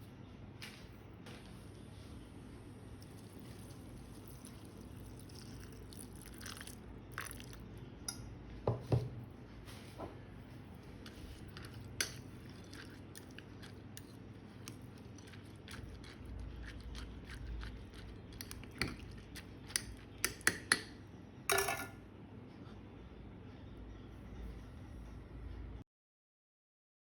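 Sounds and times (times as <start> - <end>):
utensil clinking against a mug: 18.3 - 22.0.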